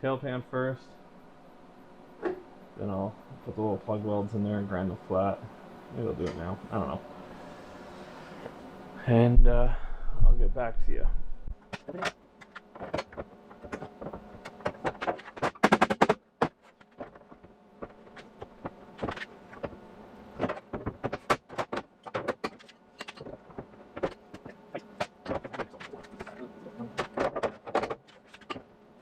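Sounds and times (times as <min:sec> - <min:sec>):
welder crackling and buzzing: 0:10.5 - 0:29.0.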